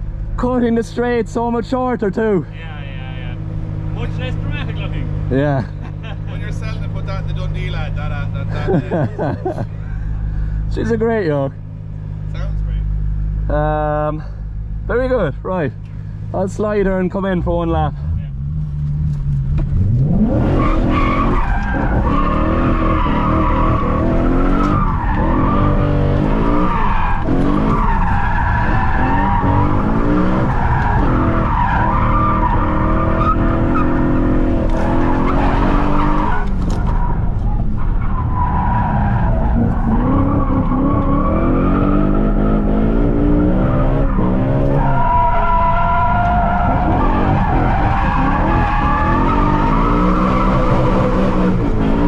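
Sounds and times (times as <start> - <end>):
car engine revving: 0.0 - 52.0
tyres squealing: 20.4 - 42.7, 43.4 - 51.7.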